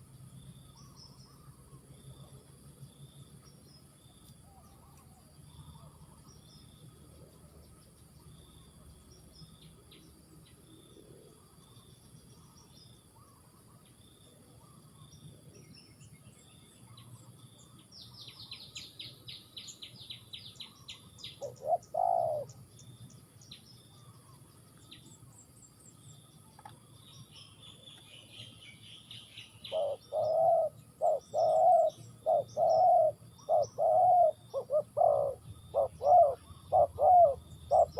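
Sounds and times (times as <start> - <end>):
faint insect drone: 0.0 - 37.9
high small-bird chirps: 14.6 - 37.9
dove cooing: 21.4 - 22.6, 29.6 - 37.9.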